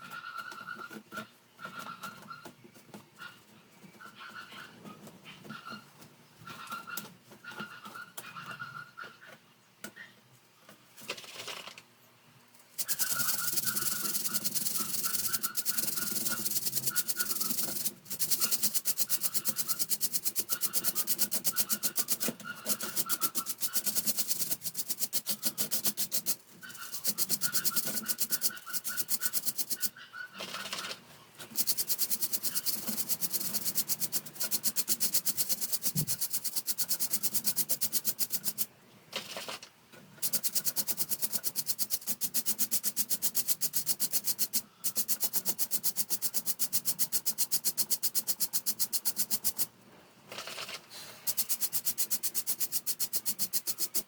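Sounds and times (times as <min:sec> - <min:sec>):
rhythmic scrubbing on fan: 0:12.8 - 0:29.9, 0:31.4 - 0:38.6, 0:40.2 - 0:49.7, 0:51.2 - 0:54.0.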